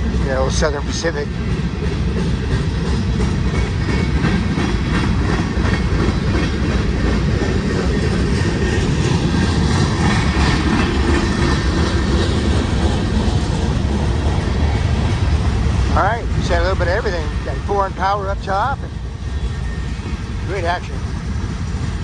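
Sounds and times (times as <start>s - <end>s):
wheels clacking over rails: 0.0s - 13.7s, 19.1s - 22.0s
freight train rumbling past: 0.0s - 22.0s.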